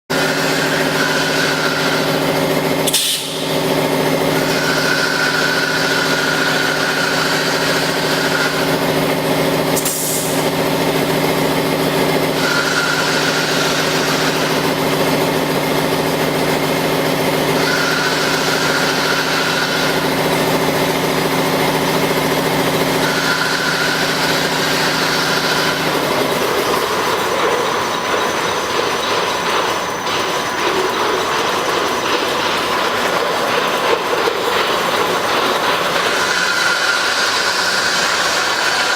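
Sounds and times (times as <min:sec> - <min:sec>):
machine hum: 0:00.1 - 0:38.9
hissing whine: 0:21.6 - 0:38.9.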